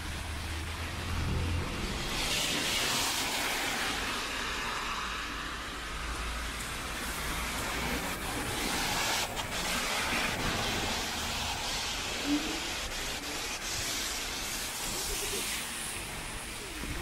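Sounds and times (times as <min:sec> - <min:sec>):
rain on wet street: 0:00.0 - 0:17.0.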